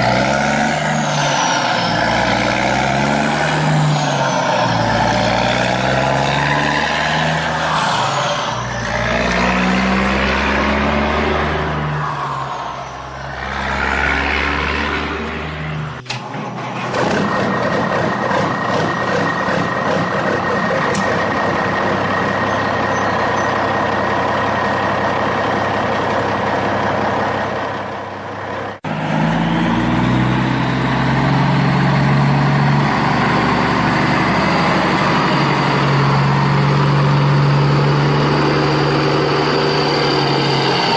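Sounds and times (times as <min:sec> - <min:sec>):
vehicle passing: 0:00.0 - 0:16.1
engine rising in pitch: 0:00.0 - 0:40.9
engine running with high whine: 0:00.0 - 0:40.9.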